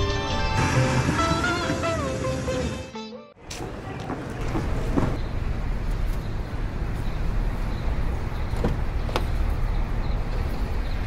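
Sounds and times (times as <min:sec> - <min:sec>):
car engine idling: 0:04.4 - 0:11.0.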